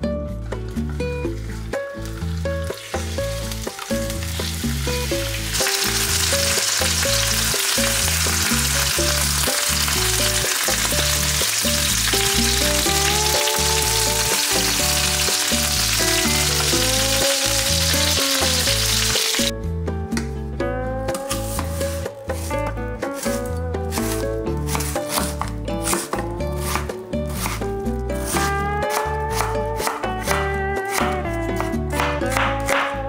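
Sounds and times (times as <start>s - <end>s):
background music: 0.0s - 33.0s
chicken frying in oil: 2.0s - 19.5s.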